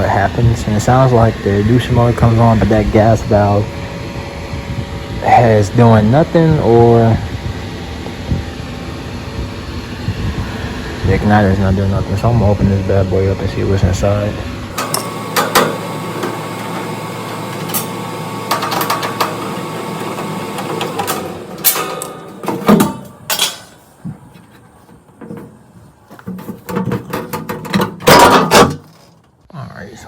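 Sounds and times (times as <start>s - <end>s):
furnace motor humming: 0.0s - 28.8s
sheet metal panel clattering: 14.8s - 23.8s, 26.2s - 29.2s.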